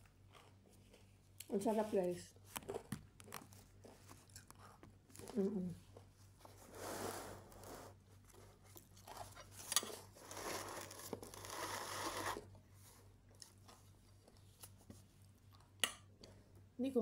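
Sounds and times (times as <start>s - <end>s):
crunching salad: 8.3s - 12.5s.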